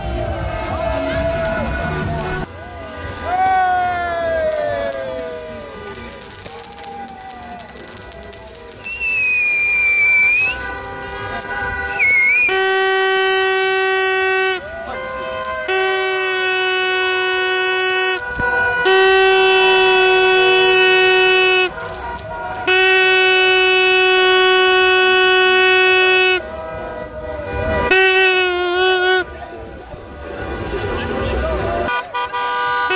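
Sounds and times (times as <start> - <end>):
car horn blasts: 9.4 - 29.3, 31.8 - 32.9.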